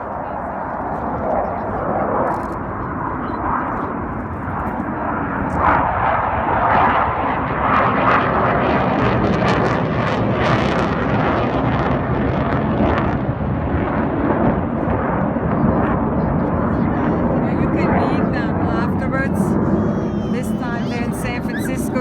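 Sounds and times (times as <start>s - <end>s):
jet aircraft flying past: 0.0s - 22.0s.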